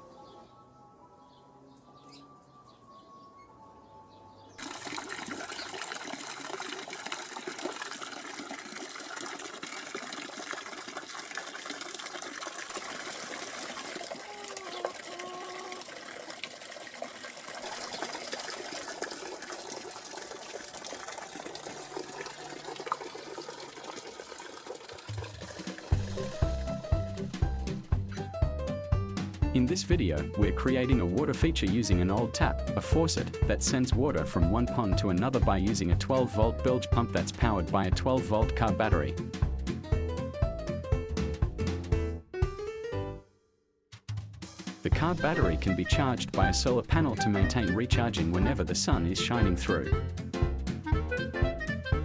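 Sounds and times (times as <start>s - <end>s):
water splashing from tap: 4.6s - 27.0s
theme music: 25.9s - 43.3s, 44.8s - 52.0s.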